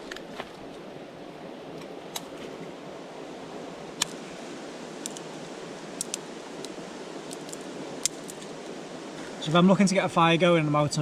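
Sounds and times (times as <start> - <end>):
river rushing over rocks: 2.6 - 11.0.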